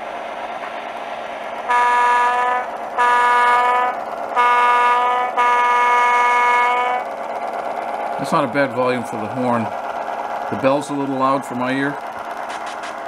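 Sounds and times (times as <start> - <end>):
diesel engine sound: 0.0 - 13.0
diesel air horn blasts: 1.7 - 7.1.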